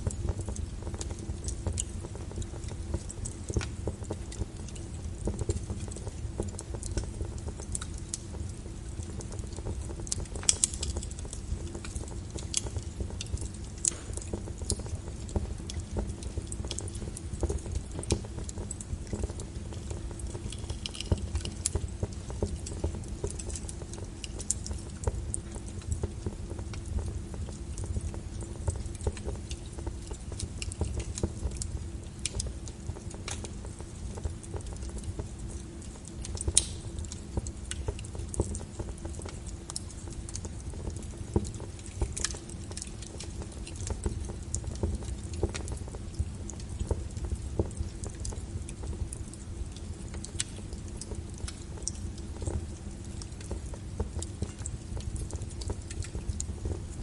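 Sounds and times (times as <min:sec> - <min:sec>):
log fire crackling and popping: 0:00.0 - 0:57.0.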